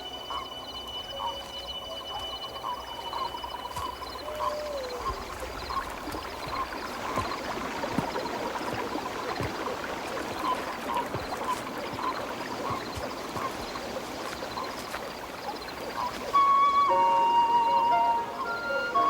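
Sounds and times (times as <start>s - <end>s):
running water: 2.6s - 19.0s.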